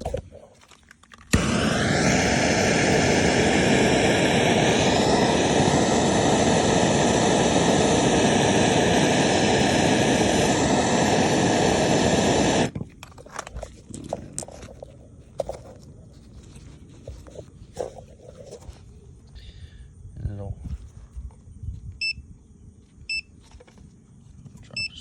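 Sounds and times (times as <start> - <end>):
gas torch flame hissing: 1.3 - 12.7.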